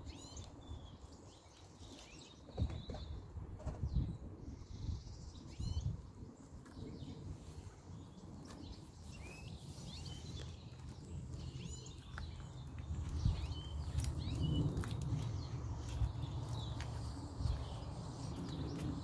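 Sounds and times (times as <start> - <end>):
small songbirds chirping: 0.0 - 19.0
low microphone rumble: 9.1 - 19.0.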